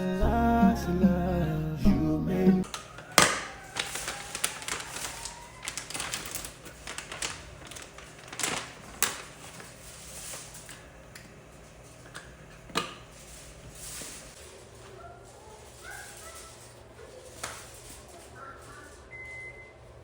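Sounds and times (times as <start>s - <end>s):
household items clicking and knocking: 2.6s - 11.4s.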